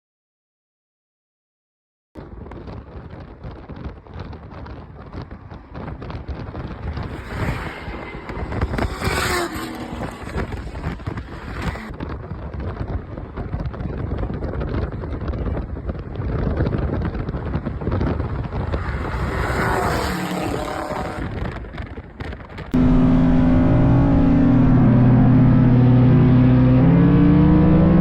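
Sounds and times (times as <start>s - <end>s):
wind noise on microphone: 2.2s - 28.0s
race cars running: 4.6s - 11.9s, 17.2s - 21.6s, 22.8s - 28.0s.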